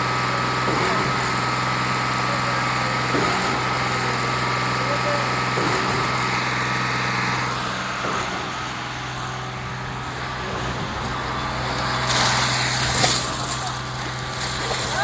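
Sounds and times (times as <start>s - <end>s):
concrete pump engine hum: 0.0s - 15.0s.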